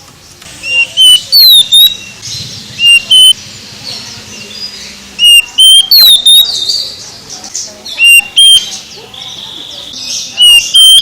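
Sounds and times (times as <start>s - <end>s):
bird singing whistled phrases: 0.6s - 2.2s, 2.8s - 3.4s, 4.4s - 7.0s, 7.9s - 11.0s
faint high chirping: 0.6s - 11.0s.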